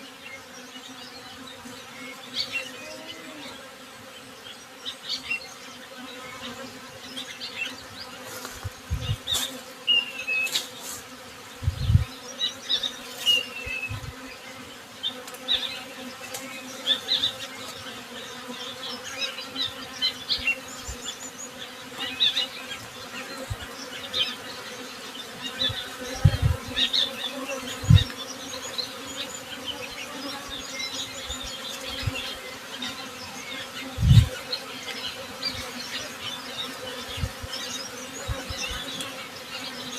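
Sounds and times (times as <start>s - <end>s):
bees buzzing: 0.0s - 39.9s
birds chirping: 0.3s - 39.9s.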